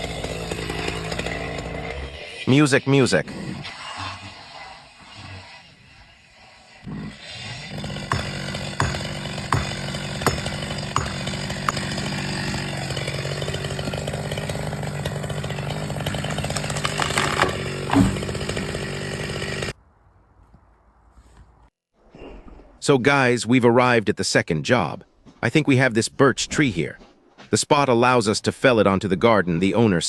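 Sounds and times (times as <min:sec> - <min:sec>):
chainsaw running: 0:00.0 - 0:19.8.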